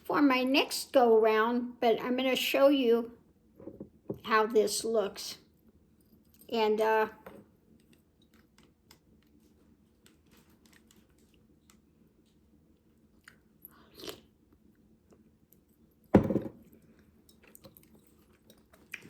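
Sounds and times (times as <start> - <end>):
faint chewing: 7.6 - 19.0.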